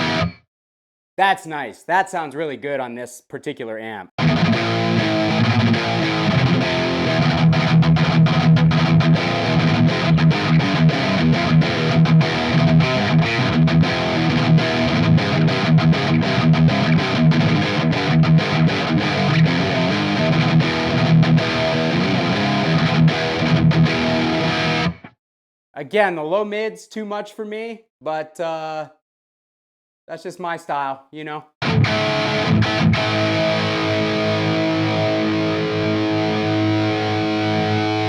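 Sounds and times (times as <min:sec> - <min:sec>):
distorted electric guitar riffing: 0:00.0 - 0:00.4, 0:04.2 - 0:25.1, 0:31.6 - 0:38.0.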